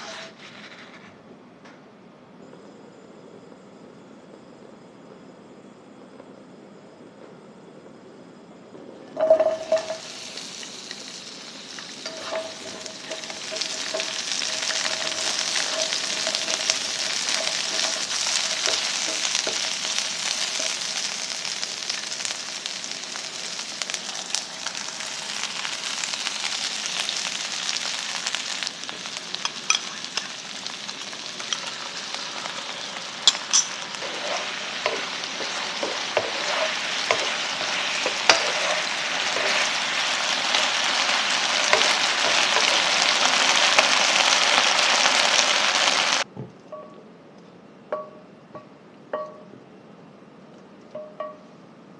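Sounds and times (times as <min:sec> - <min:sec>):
food sizzling in a frying pan: 0:09.2 - 0:46.3.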